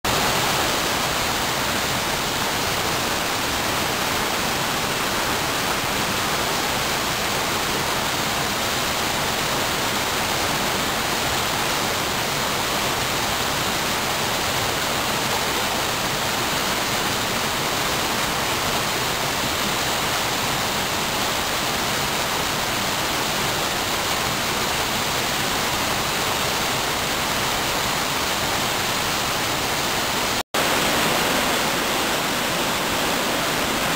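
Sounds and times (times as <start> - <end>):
rush of falling water: 0.0 - 33.9.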